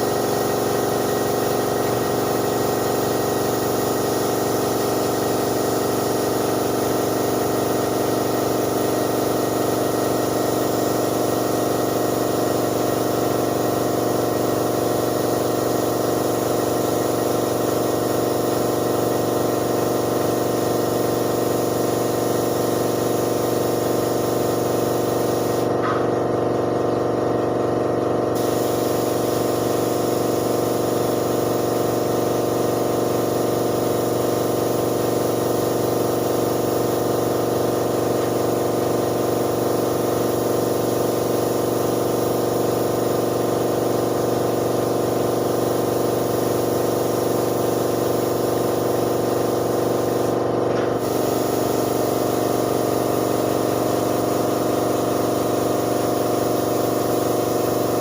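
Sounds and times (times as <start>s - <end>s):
spray gun hissing: 0.0s - 25.8s, 28.3s - 58.0s
air compressor motor running: 0.0s - 58.0s.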